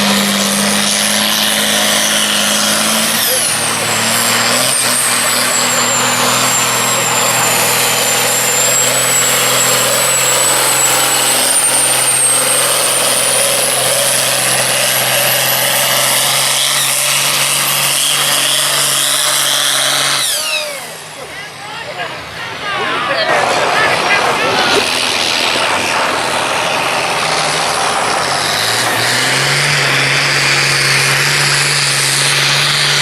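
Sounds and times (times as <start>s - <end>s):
high engine whistle: 0.0s - 21.1s
tractor diesel engine under load: 0.0s - 33.0s.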